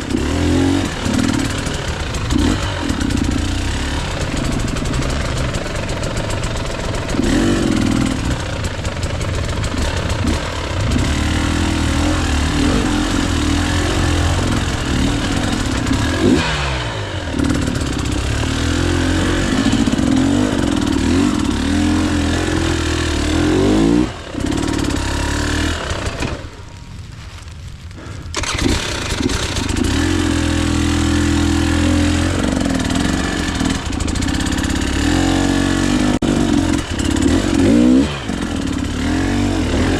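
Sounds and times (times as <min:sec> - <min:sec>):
motorcycle engine revving: 0:00.0 - 0:26.9, 0:28.0 - 0:39.9.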